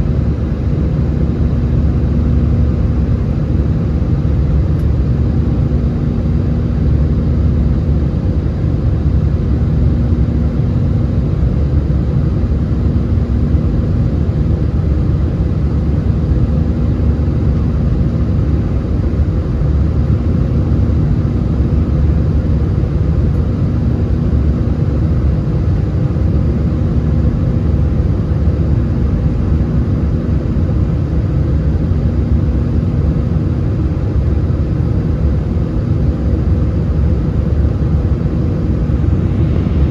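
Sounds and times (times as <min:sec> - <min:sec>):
jet engines rumbling: 0:12.6 - 0:39.9.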